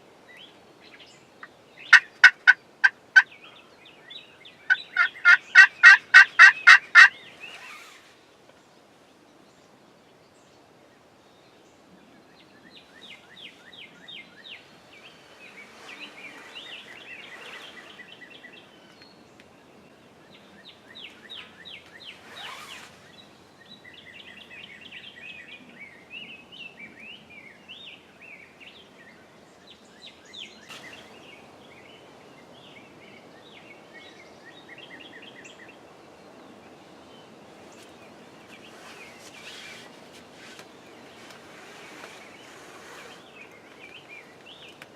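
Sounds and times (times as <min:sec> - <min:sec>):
rapid chirping bird calls: 0:01.8 - 0:08.2, 0:12.8 - 0:19.2, 0:20.6 - 0:25.8, 0:37.2 - 0:44.9
turkey gobbling: 0:01.9 - 0:03.3, 0:04.7 - 0:07.1.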